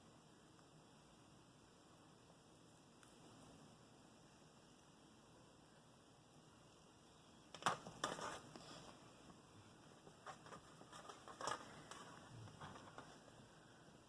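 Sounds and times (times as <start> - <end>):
modelling clay handling taps and rustles: 7.5 - 13.3.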